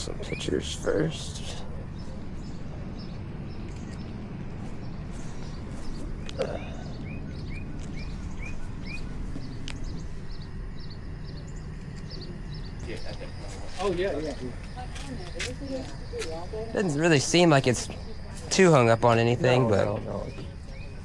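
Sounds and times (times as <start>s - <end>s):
birds chirping: 0.0s - 21.0s
steady low rumble: 0.0s - 21.0s.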